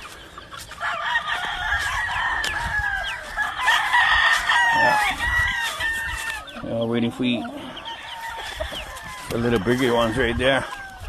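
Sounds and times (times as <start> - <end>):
chickens clucking: 0.0 - 11.0
roosters crowing: 0.0 - 11.0.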